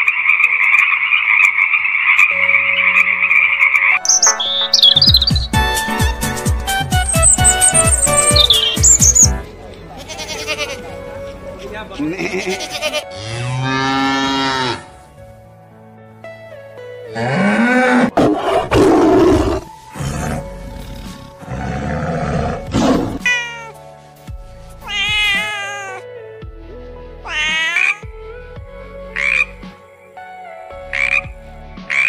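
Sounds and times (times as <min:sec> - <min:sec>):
background music: 0:00.0 - 0:32.0
lions roaring: 0:17.2 - 0:23.3
cat meowing: 0:23.2 - 0:23.8, 0:24.8 - 0:26.0, 0:27.2 - 0:28.0.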